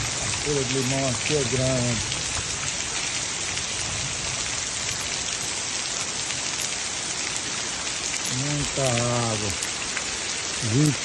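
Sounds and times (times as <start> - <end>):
heavy rain on wet ground: 0.0 - 11.0.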